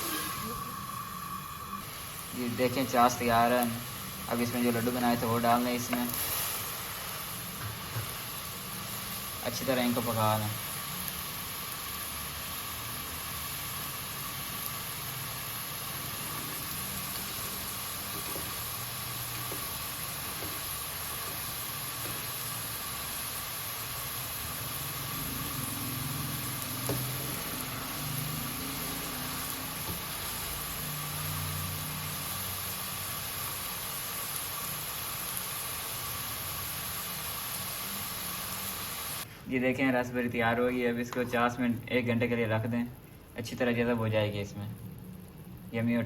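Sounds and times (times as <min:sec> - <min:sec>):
syrup simmering hiss: 0:00.0 - 0:46.0.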